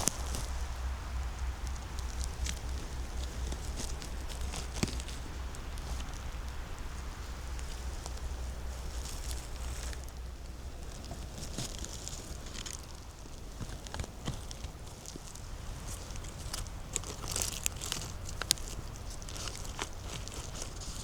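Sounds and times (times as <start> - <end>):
low rumble: 0.0 - 13.9
dry leaves rustling: 0.0 - 21.0
footsteps on leaf litter: 0.0 - 21.0
twigs crackling: 0.0 - 21.0.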